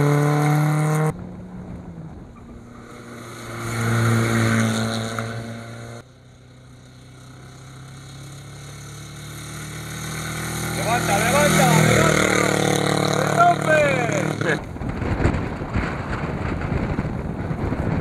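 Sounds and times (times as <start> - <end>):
rally car engine revving: 0.0 - 6.0, 7.4 - 18.0
rally car approaching: 0.0 - 18.0.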